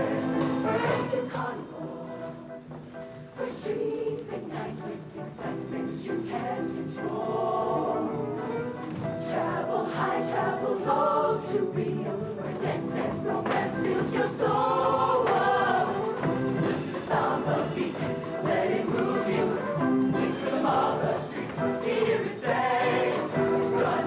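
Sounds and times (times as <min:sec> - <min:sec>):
band accompaniment: 0:00.0 - 0:01.5, 0:12.8 - 0:24.0
choir singing: 0:00.0 - 0:02.7, 0:03.3 - 0:24.0.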